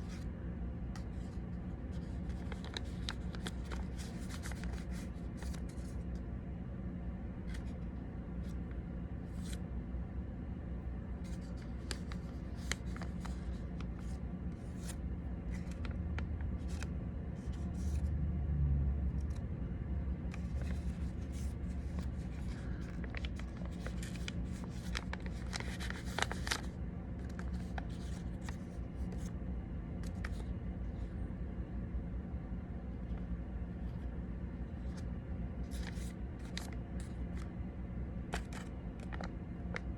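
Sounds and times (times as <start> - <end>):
paper crinkling: 0.0 - 0.3, 0.9 - 6.2, 7.4 - 7.8, 9.2 - 9.6, 11.2 - 18.0, 20.3 - 29.3, 30.0 - 30.5, 34.8 - 37.6, 38.3 - 39.9
steady low hum: 0.0 - 39.9.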